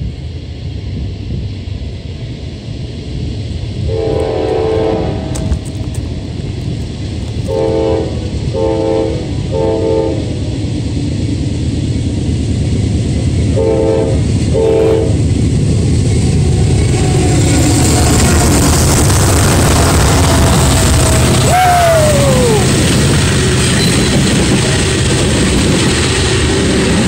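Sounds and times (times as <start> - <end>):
locomotive horn blasts: 3.9 - 5.5, 7.5 - 10.3, 13.6 - 15.2
diesel engine rumble: 14.2 - 27.0
wheels on rails: 15.3 - 27.0.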